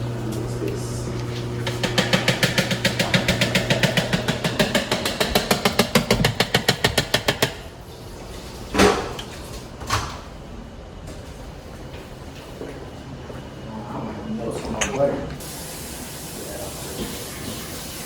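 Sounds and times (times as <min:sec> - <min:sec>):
utensil beating mixture in bowl: 0:00.0 - 0:07.8
knocks on bowl: 0:01.6 - 0:07.6.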